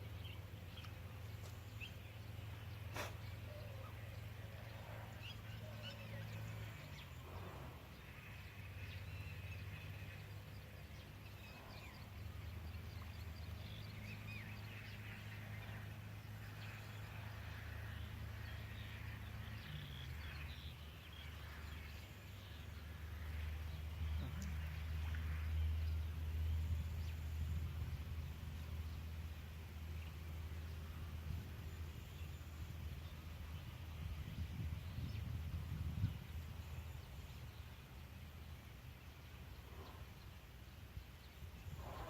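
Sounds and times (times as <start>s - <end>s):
low steady rumble: 0.0s - 42.0s.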